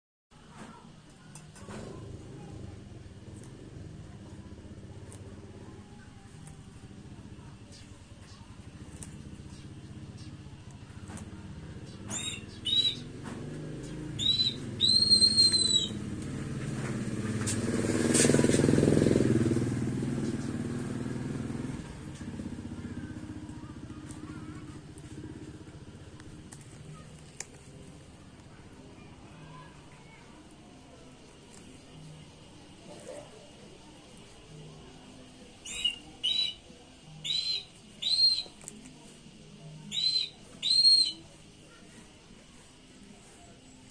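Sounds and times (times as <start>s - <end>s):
vehicle engine passing by: 1.7s - 29.4s
bird calling: 11.8s - 13.1s, 14.2s - 16.0s, 35.6s - 38.6s, 39.8s - 41.8s.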